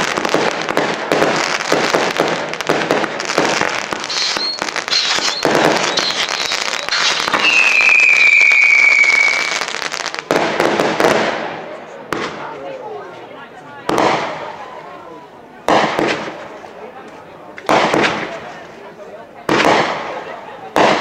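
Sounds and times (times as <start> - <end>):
whistling firework: 0.0 - 10.0
fireworks crackling and popping: 0.0 - 21.0.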